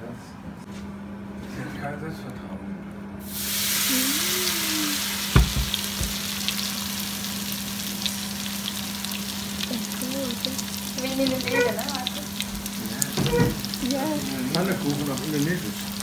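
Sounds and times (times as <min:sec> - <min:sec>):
food frying in hot oil: 0:03.2 - 0:16.0
sharp knock: 0:05.4 - 0:06.2.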